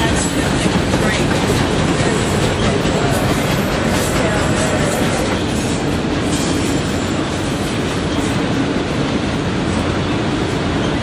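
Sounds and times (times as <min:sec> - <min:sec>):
freight train wheels on rails: 0:00.0 - 0:11.0.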